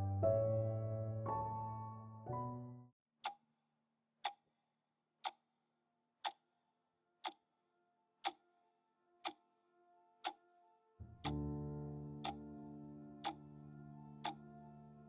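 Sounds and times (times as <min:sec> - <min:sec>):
sharp clock-like ticks: 0:05.2 - 0:05.4, 0:06.2 - 0:06.4.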